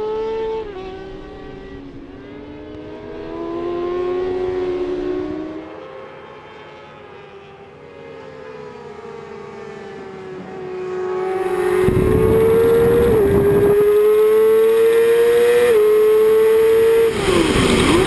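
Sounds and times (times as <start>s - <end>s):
superbike engines passing at high revs: 10.7s - 18.0s.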